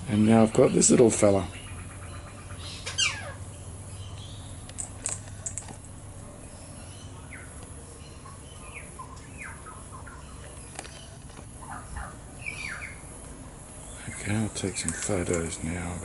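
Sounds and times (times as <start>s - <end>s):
sharp high clicks: 4.6s - 5.8s.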